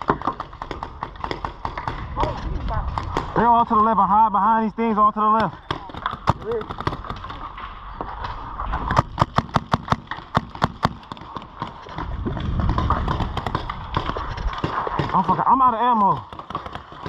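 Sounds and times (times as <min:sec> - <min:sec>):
paintball marker shots: 0:08.9 - 0:12.0.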